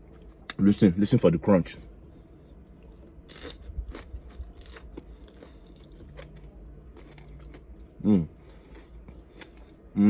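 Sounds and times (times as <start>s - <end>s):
crunching bites and chewing: 2.4s - 9.9s.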